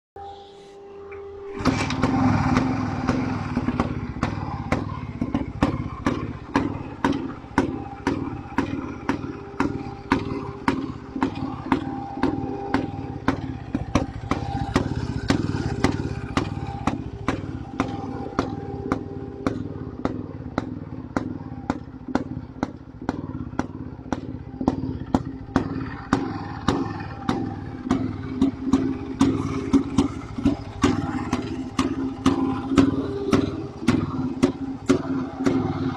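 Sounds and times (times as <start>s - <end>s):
motorcycle engine idling: 1.2s - 35.9s.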